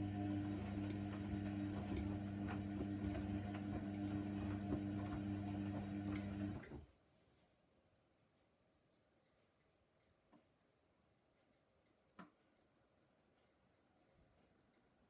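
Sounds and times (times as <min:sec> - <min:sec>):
washing machine pump humming: 0:00.0 - 0:06.9.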